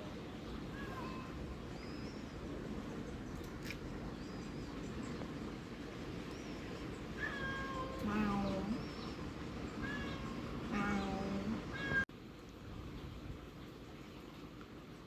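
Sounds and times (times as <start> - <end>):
cat meowing: 7.2 - 8.8, 9.8 - 12.1.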